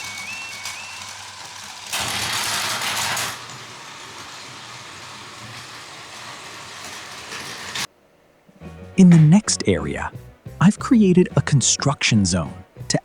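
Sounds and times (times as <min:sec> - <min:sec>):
loud hiss: 0:00.0 - 0:07.9
toy train motor whir: 0:00.0 - 0:07.9.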